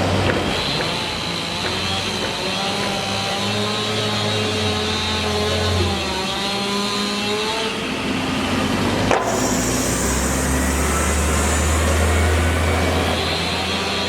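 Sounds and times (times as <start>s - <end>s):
engines running: 0.0s - 14.0s
loud low drone: 8.3s - 14.0s.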